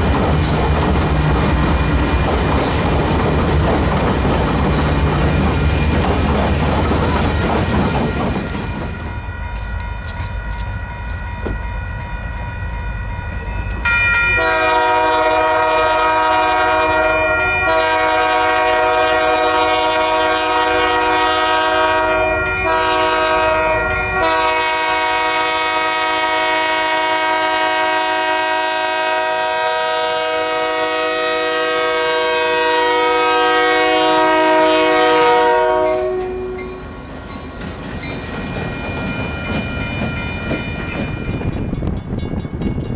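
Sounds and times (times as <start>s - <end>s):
low rumble of train: 0.0s - 42.9s
locomotive air horn blasts: 14.4s - 36.9s.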